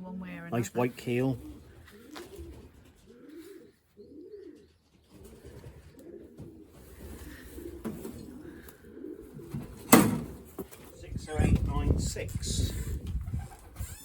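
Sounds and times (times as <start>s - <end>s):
pigeons cooing: 1.1s - 11.2s.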